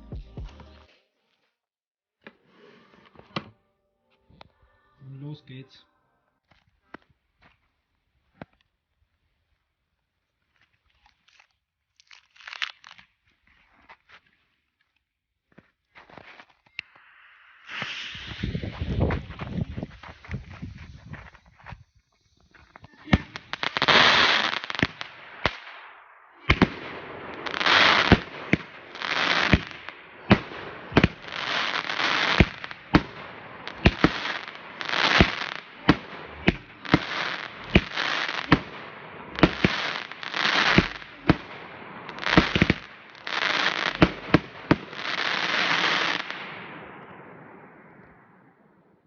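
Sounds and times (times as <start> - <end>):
firework reports with crackling: 16.8 - 48.9.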